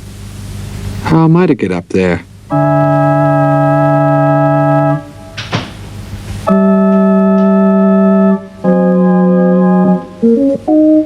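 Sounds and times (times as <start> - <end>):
organ playing long held notes: 2.5 - 5.4, 6.4 - 11.0.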